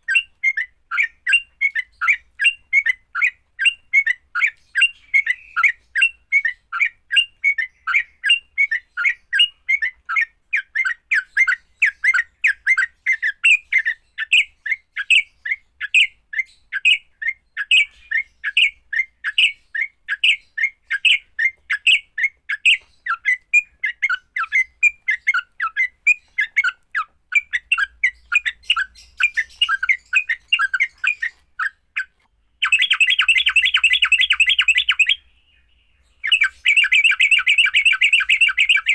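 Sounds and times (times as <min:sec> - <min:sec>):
bulbul squawky chatter: 0:22.6 - 0:35.3, 0:36.2 - 0:38.9.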